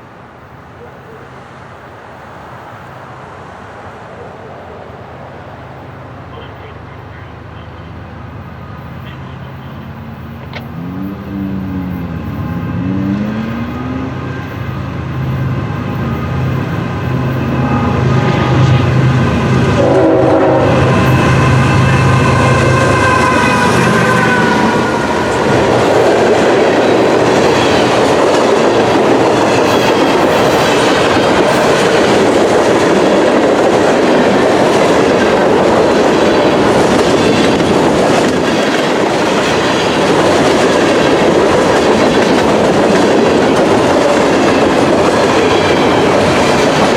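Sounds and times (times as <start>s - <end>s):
diesel locomotive engine: 0.0s - 46.9s
railcar wheels clattering on rails: 5.8s - 46.9s
train horn: 16.1s - 26.0s.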